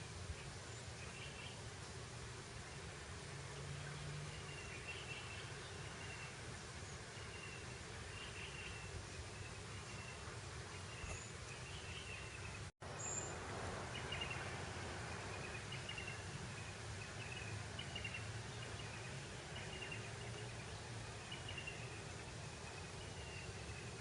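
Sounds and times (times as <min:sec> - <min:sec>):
breeze blowing over grass: 0:00.0 - 0:24.0.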